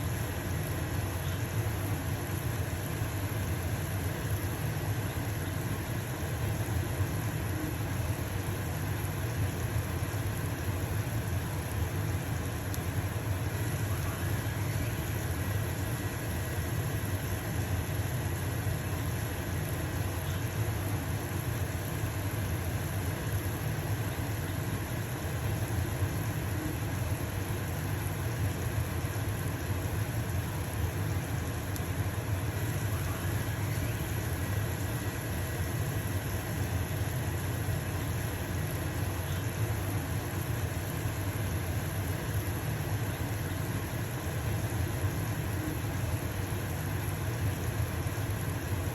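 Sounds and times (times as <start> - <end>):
pancake sizzling in a frying pan: 0.0 - 48.9
range hood fan humming: 0.0 - 48.9.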